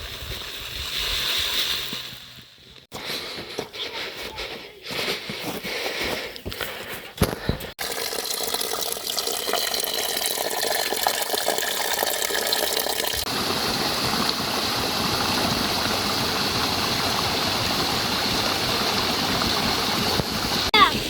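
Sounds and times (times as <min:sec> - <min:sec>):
water running and gushing: 0:07.8 - 0:21.0.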